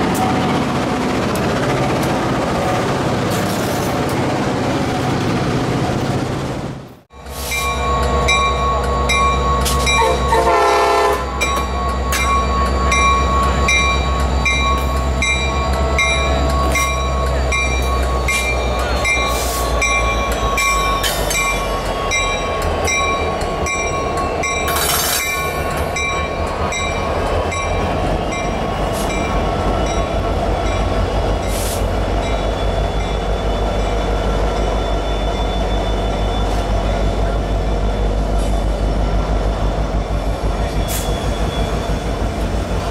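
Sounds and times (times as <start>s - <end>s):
diesel train rumbling past: 0.0s - 42.9s
bell ringing: 7.5s - 10.5s, 11.3s - 28.6s
train horn: 9.9s - 11.4s.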